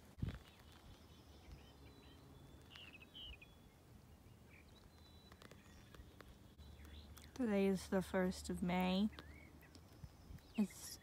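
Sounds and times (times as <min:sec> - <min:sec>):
faint bird chirps: 0:00.2 - 0:07.7.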